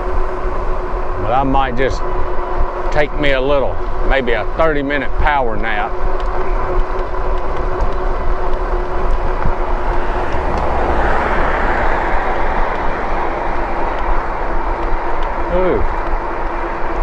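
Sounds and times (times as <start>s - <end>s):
thin steady hum: 0.0s - 17.0s
wind and tyre noise: 5.2s - 17.0s.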